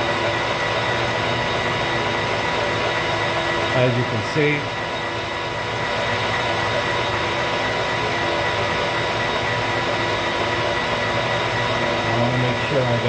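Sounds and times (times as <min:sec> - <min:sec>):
metal lathe running: 0:00.0 - 0:13.0.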